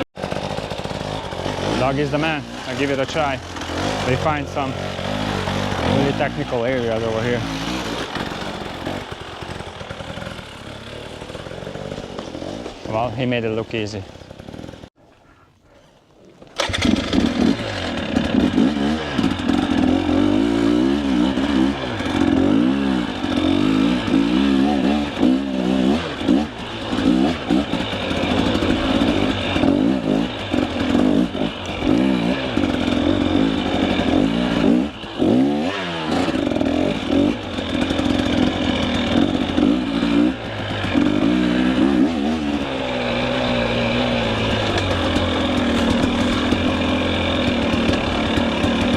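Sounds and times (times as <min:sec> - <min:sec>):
dirt bike engine revving: 0:00.0 - 0:14.9, 0:16.6 - 0:48.9.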